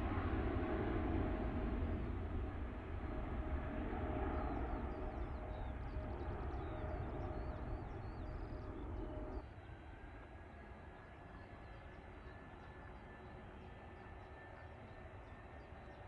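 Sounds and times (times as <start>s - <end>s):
jet engine rumble: 0.0s - 9.4s
small birds chirping: 4.3s - 9.4s.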